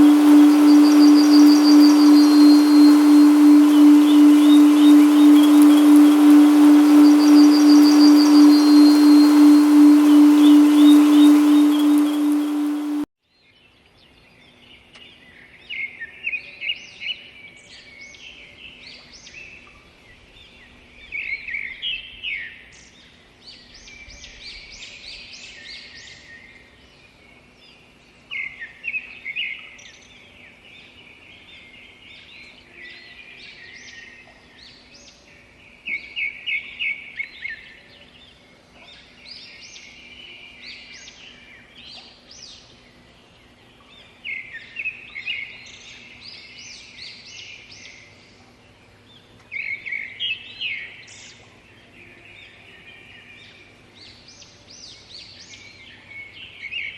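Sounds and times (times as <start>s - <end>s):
birds chirping: 0.0s - 13.1s
faint low hum: 0.0s - 13.1s.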